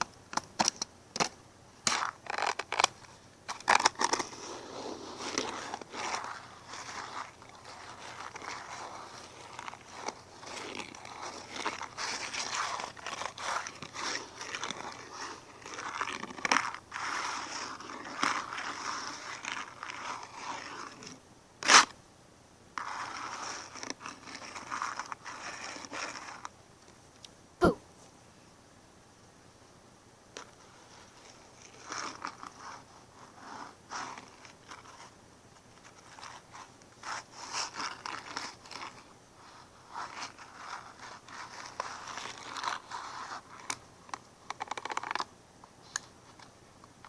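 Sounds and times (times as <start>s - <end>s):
crunching and scraping: 0.3s - 21.9s.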